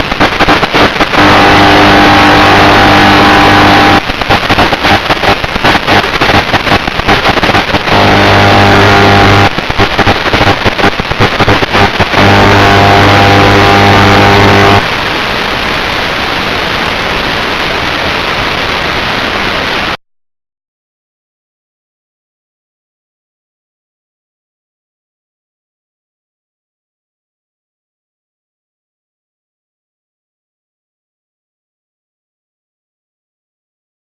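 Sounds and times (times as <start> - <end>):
drone motors humming: 0.0 - 15.0.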